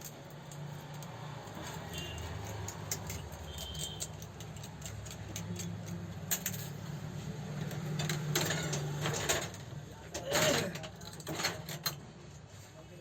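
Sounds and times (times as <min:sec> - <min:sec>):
metallic clicks and taps: 0:00.0 - 0:06.6.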